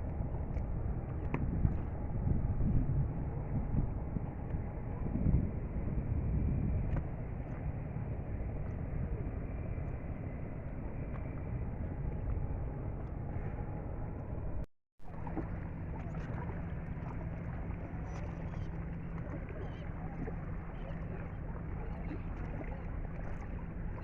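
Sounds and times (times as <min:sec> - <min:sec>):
rushing wind: 0:00.0 - 0:07.4
low steady hum: 0:00.0 - 0:24.0
water splashing against hull: 0:15.0 - 0:24.0.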